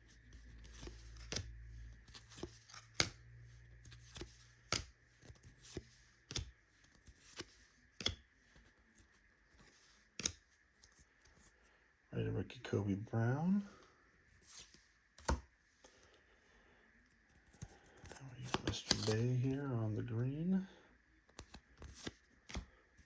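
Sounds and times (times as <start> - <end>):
faint low hum: 0.0 - 23.0
trading cards clicking and snapping: 0.6 - 8.3, 10.2 - 11.0, 17.4 - 19.4, 21.3 - 22.7.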